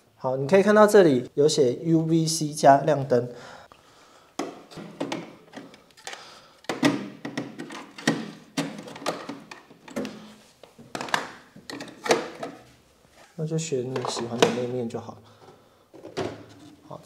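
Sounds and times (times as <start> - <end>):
hard plastic parts clicking: 4.4 - 12.7, 13.9 - 14.7.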